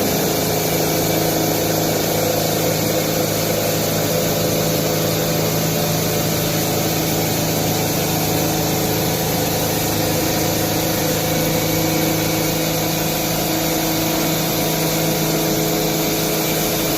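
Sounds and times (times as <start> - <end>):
cnc machine humming: 0.0 - 16.9.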